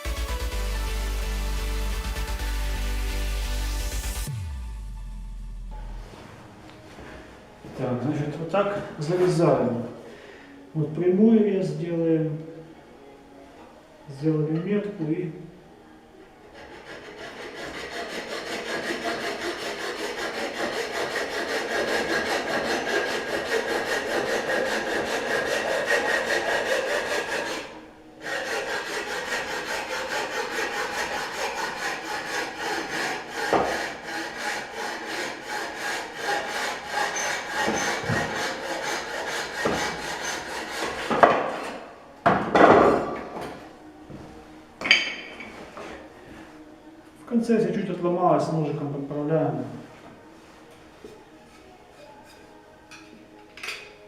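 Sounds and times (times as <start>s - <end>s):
saw scraping: 16.5s - 41.9s
hand saw cutting stone tile: 16.6s - 41.8s.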